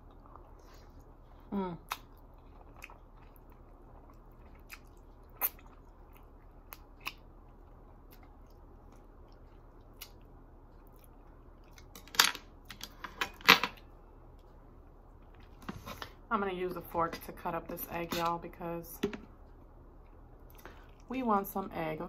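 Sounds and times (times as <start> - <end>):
wet chewing and smacking: 1.8 - 12.8.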